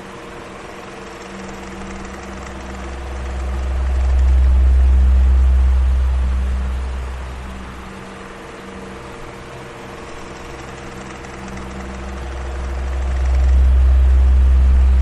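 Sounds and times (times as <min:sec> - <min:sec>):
electric fan motor hum: 0:00.0 - 0:15.0.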